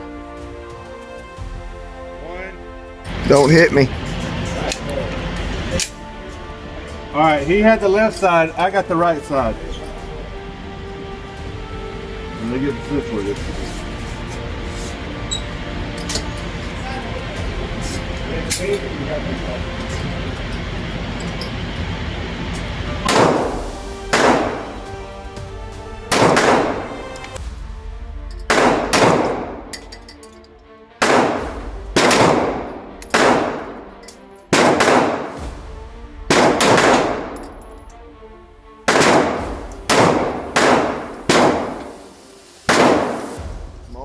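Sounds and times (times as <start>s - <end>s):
pistol shots echoing: 23.0s - 25.0s, 26.1s - 27.4s, 28.5s - 30.0s, 31.0s - 35.6s, 36.3s - 37.6s, 38.9s - 43.4s.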